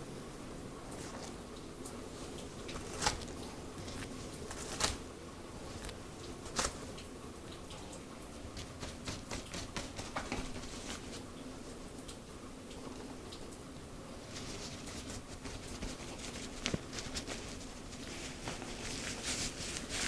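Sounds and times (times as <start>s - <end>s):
steady hiss: 0.0s - 20.0s
hands massaging hair: 14.2s - 20.0s.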